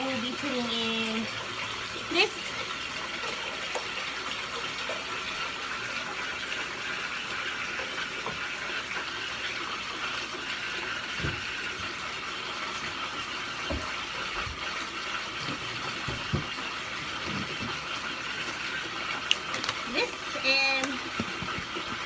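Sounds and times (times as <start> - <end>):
water pouring into a bathtub: 0.0 - 22.0.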